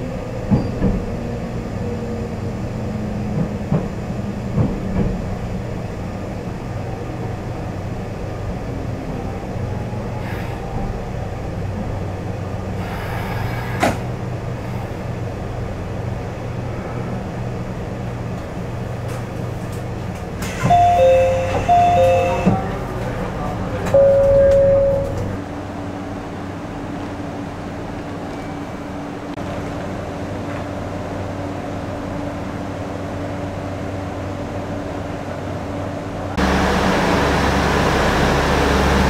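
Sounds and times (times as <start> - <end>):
train running low drone: 0.0 - 39.0
two-note chime: 20.7 - 22.5, 24.0 - 25.2.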